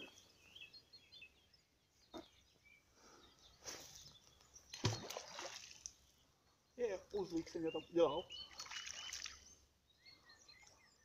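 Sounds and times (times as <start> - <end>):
faint bird chirp: 0.0 - 11.0.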